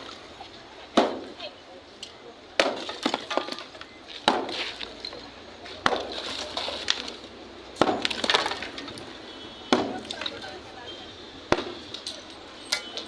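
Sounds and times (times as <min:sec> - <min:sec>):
falling debris clatter: 0:02.6 - 0:03.9, 0:07.8 - 0:09.0
heavy blows cracking masonry: 0:02.6 - 0:04.8, 0:05.8 - 0:07.2, 0:07.8 - 0:09.0, 0:09.7 - 0:10.4, 0:11.5 - 0:12.0.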